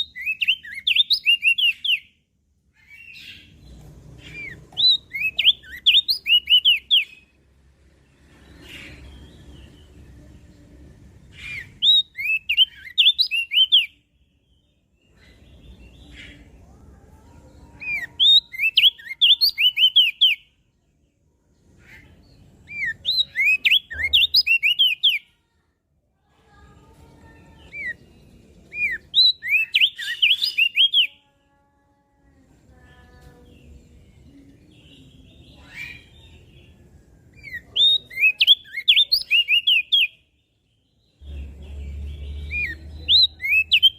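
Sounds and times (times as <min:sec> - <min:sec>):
bird chattering song: 0:00.0 - 0:07.4, 0:11.2 - 0:14.0, 0:17.7 - 0:20.5, 0:21.6 - 0:25.2, 0:27.2 - 0:31.2, 0:32.8 - 0:43.9.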